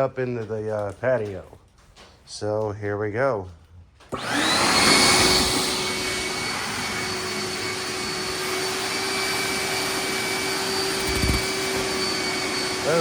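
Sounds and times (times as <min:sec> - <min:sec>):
wet dry vacuum running: 0:04.1 - 0:13.0.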